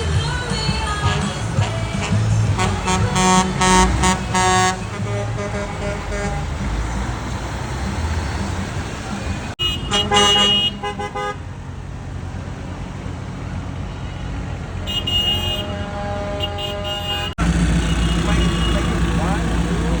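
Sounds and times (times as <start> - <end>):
truck engines droning: 0.0 - 20.0
horn blasts: 0.9 - 6.7, 9.6 - 11.4, 14.0 - 19.4.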